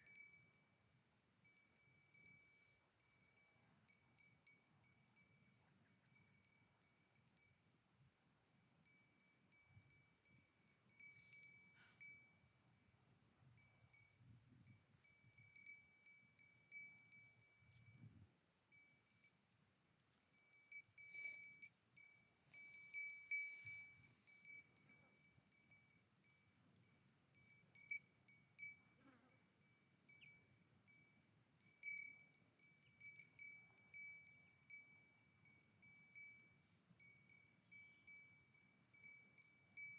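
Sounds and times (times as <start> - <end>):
cowbell clanking: 0.0 - 7.7, 8.6 - 12.5, 18.8 - 39.9.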